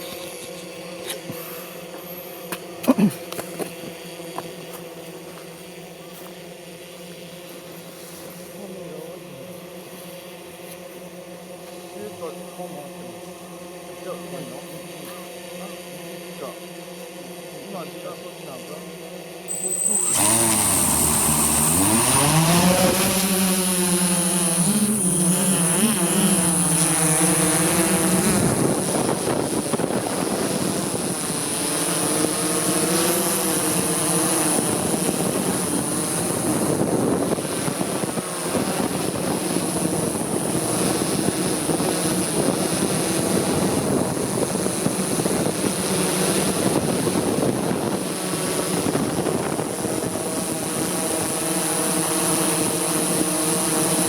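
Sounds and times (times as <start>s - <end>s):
steady high whistle: 19.5s - 22.9s
drone propellers whining: 19.5s - 29.7s.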